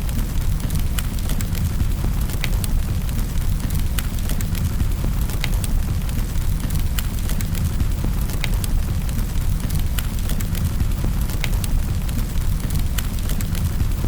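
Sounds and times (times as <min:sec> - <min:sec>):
fire crackling and popping: 0:00.0 - 0:14.0
low rumble of flames: 0:00.0 - 0:14.0.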